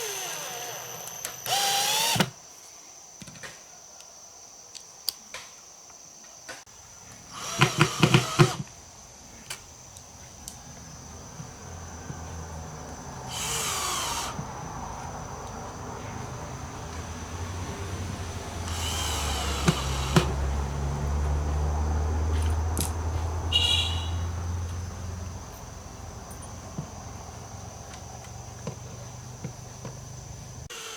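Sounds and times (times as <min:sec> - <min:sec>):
power drill running: 0:00.0 - 0:02.4, 0:07.3 - 0:08.6, 0:13.3 - 0:14.4, 0:18.6 - 0:20.4.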